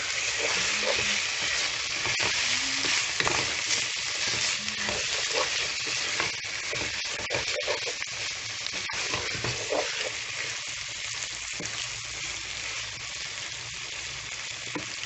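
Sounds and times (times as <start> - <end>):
spatula scraping a pan: 0.0 - 10.8
curry sizzling in a pan: 0.0 - 15.0.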